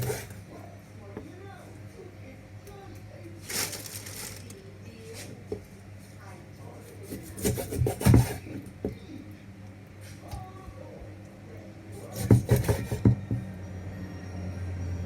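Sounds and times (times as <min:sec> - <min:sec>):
knife scraping through meat: 0:00.0 - 0:00.4, 0:06.8 - 0:08.6, 0:12.0 - 0:13.2
knocks on cutting board: 0:12.2 - 0:13.4.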